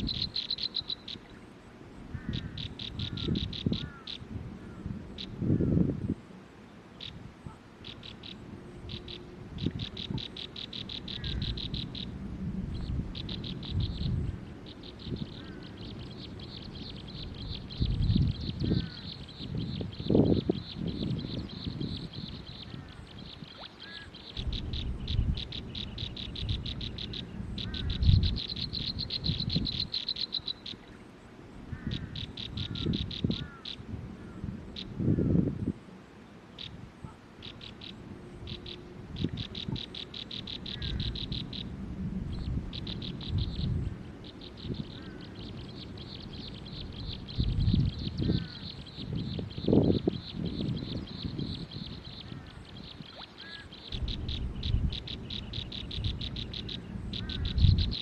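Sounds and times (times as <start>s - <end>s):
animal pulsed trills: 0.0s - 6.1s, 6.9s - 35.7s, 36.5s - 58.0s
low rumbles: 53.9s - 58.0s.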